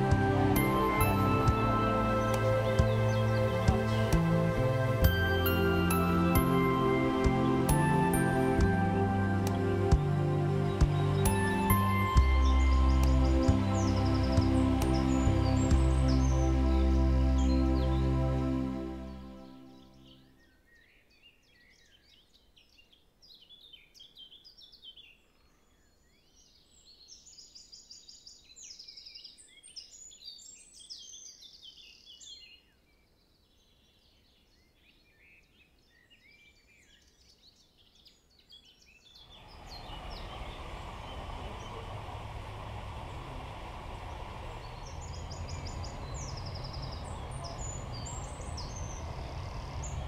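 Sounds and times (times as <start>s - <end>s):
songbirds singing and chirping: 0.0s - 50.0s
steady rushing noise: 39.3s - 50.0s.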